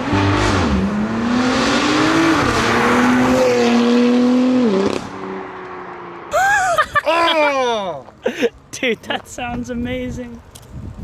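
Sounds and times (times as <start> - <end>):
car engine accelerating hard: 0.0 - 6.3.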